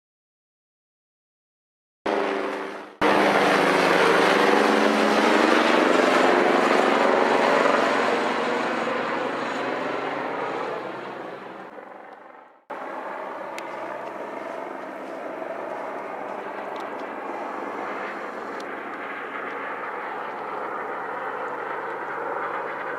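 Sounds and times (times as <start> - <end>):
helicopter flying past: 2.1 - 22.9.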